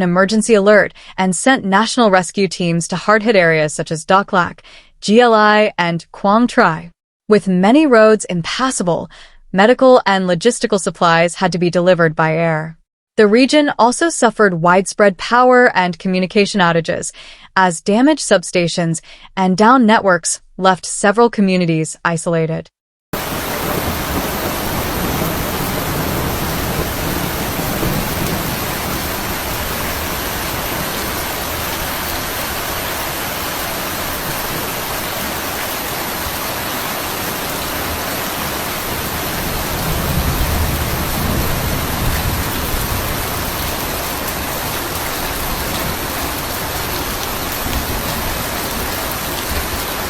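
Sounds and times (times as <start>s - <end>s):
heavy rain pouring: 23.2s - 50.0s.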